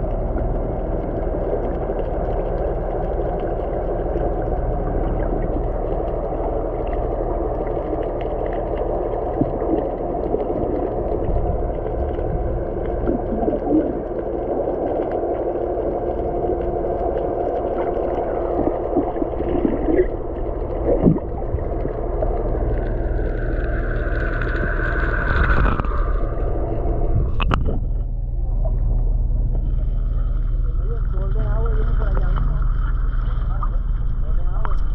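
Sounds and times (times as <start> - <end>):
water noise: 0.0 - 34.9
boat engine running: 8.9 - 34.9.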